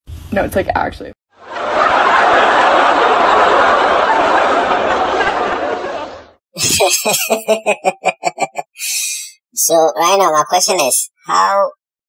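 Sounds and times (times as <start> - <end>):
crowd laughing: 1.4 - 9.1.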